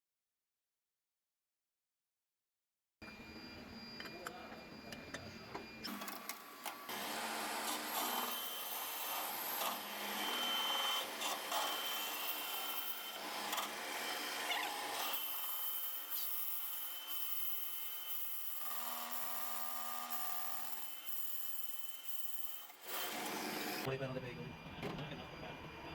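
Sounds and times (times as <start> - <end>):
lathe cutting tool scraping metal: 5.9 - 19.2.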